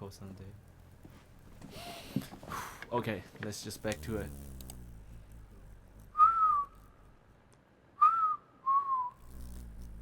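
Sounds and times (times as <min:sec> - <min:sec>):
person whistling short notes: 0:06.2 - 0:06.8, 0:08.0 - 0:09.2.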